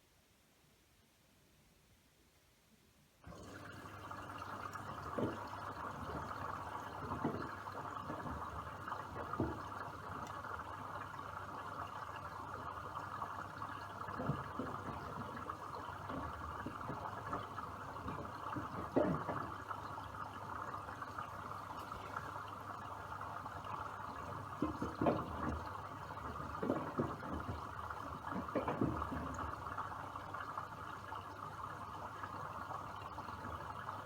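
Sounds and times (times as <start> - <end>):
water rushing into washing machine: 3.3 - 34.0
soft thumps from drum: 24.6 - 29.6.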